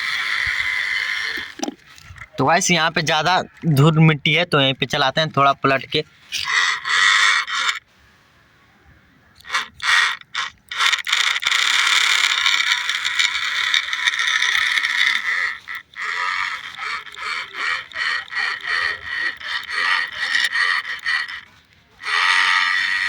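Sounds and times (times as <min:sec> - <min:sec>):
toy electric motor whining: 0:00.0 - 0:02.3, 0:06.3 - 0:07.9, 0:09.4 - 0:23.0.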